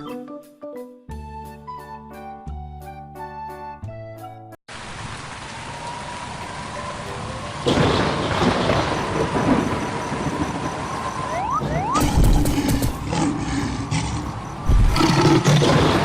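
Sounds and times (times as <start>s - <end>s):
steady rain falling: 4.7s - 12.6s
thunder rumble: 5.7s - 16.0s.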